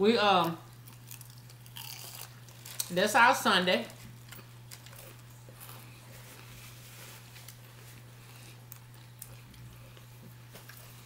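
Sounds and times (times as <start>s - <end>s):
steady low hum: 0.0s - 11.0s
quiet chewing: 3.9s - 11.0s.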